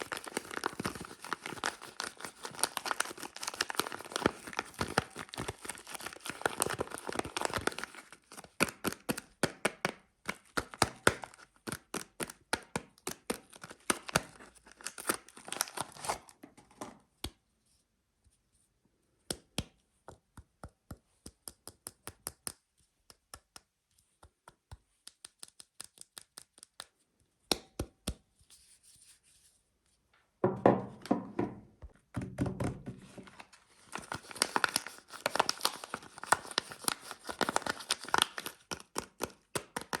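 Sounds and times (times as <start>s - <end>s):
packaging crinkling and tearing: 0.0s - 9.6s, 10.3s - 16.4s, 33.3s - 40.0s.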